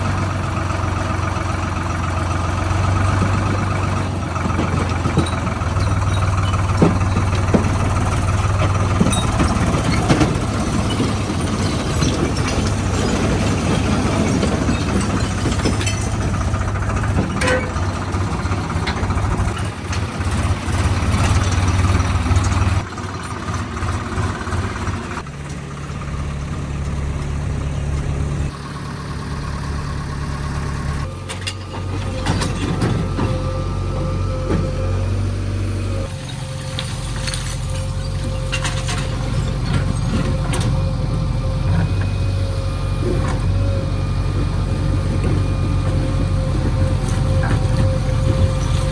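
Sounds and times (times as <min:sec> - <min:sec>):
heavy machinery diesel engine: 0:00.0 - 0:48.9.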